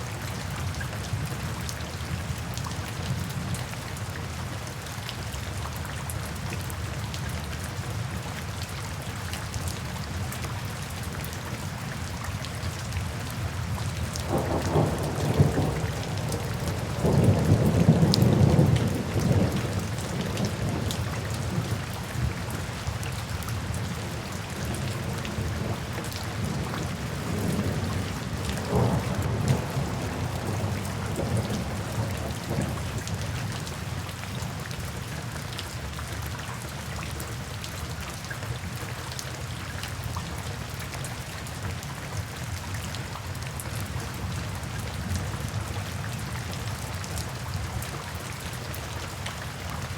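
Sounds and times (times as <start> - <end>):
rain falling: 0.0 - 49.9.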